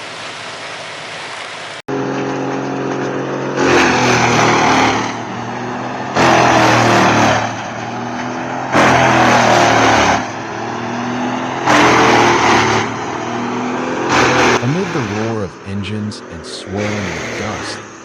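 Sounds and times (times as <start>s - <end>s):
wood chipper engine droning: 0.6s - 18.0s
wood chipper shredding log: 1.9s - 15.4s.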